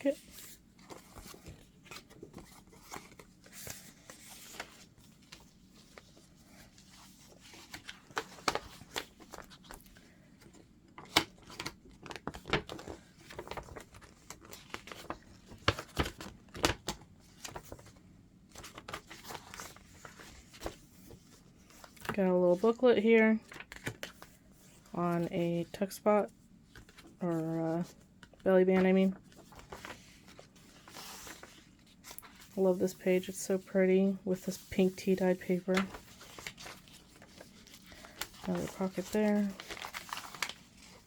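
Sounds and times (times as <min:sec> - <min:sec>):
paper pages rustling and flicking: 0:00.0 - 0:22.7, 0:23.4 - 0:26.0, 0:26.7 - 0:33.7, 0:34.3 - 0:41.0.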